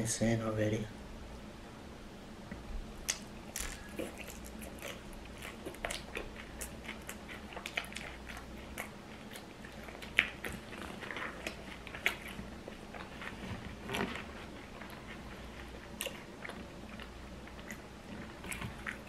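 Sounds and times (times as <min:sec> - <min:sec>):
mouth clicks and smacks: 0:02.5 - 0:14.1
person chewing food: 0:03.0 - 0:19.0.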